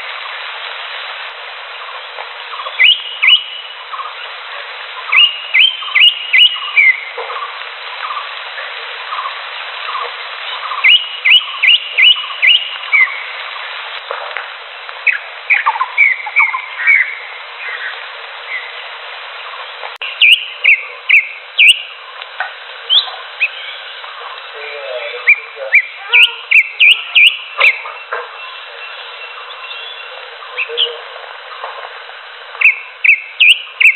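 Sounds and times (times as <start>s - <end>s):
steady hiss: 0.0s - 33.9s
bird singing rising whistles: 2.6s - 3.7s, 5.1s - 7.1s, 10.7s - 13.2s, 15.1s - 17.9s, 20.0s - 21.9s, 25.2s - 30.9s, 32.6s - 33.9s.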